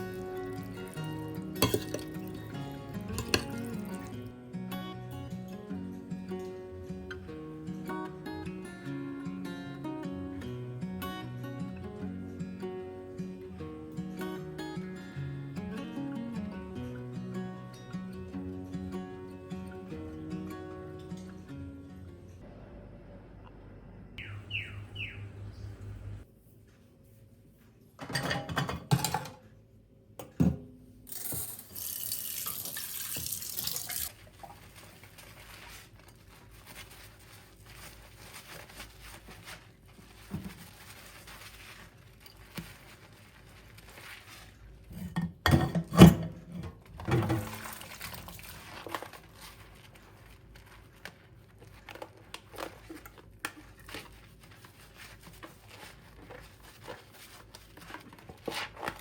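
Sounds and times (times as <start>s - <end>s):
kitchen tap running: 31.1s - 34.6s.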